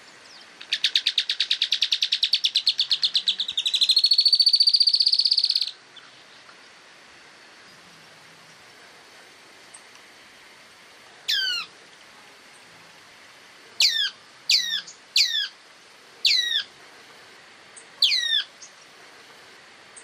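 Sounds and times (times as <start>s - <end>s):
bird whistling downward calls: 0.7s - 5.8s, 13.8s - 15.5s, 18.0s - 18.5s.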